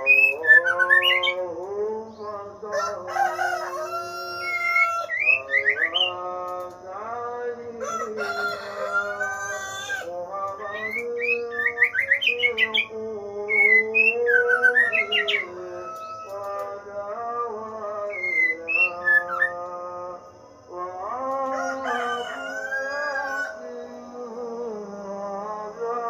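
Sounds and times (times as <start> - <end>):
songbirds chirping: 0.0 - 26.0
rooster crowing: 2.6 - 6.2, 7.6 - 11.6, 14.0 - 19.5, 20.3 - 26.0.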